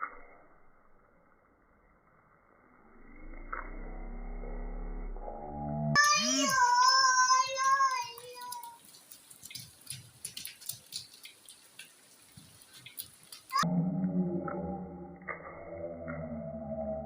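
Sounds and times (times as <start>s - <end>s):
water splashing and dripping: 0.0s - 17.0s
child shouting: 6.0s - 8.8s.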